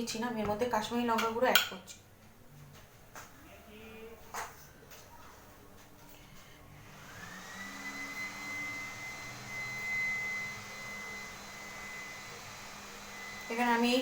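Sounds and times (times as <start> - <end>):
electric motor whining: 6.9 - 13.6.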